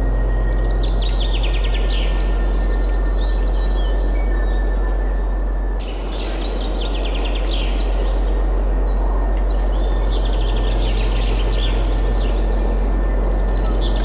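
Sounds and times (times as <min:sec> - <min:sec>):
songbirds chirping and trilling: 0:00.0 - 0:14.0
wind rushing with low rumble: 0:00.0 - 0:14.0.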